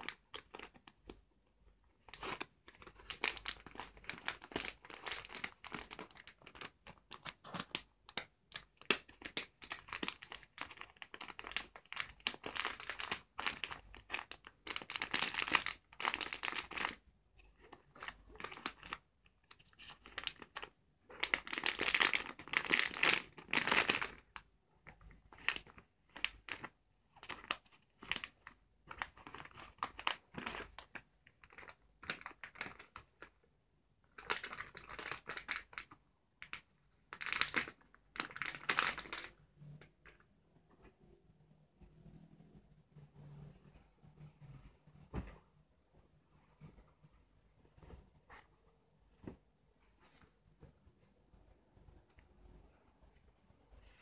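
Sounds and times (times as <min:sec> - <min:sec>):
packaging crinkling and rustling: 0:02.0 - 0:24.4, 0:25.3 - 0:33.3, 0:34.1 - 0:39.4.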